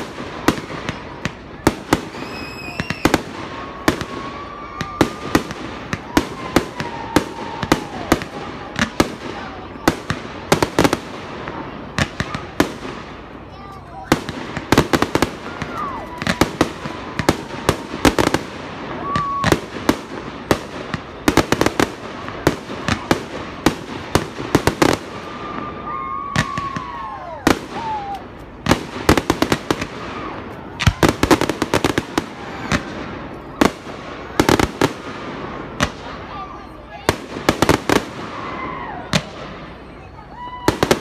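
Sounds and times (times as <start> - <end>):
fireworks bursting with loud bangs: 0.0 - 41.0
falling firework whistles: 1.9 - 8.4, 18.9 - 19.7.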